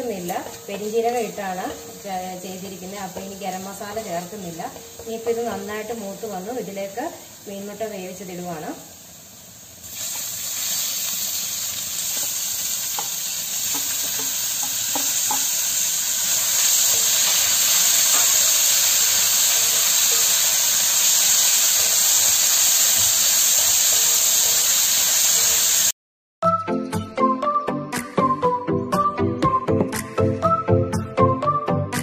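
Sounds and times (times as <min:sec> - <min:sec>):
fish roe sizzling in a pan: 0:00.0 - 0:07.7, 0:08.8 - 0:25.9.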